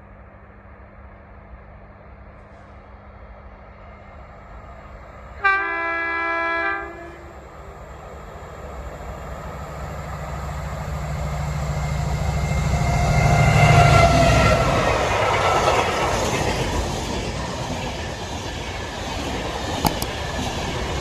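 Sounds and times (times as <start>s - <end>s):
train horn blast: 5.4s - 7.5s
locomotive engine rumble: 6.7s - 21.0s.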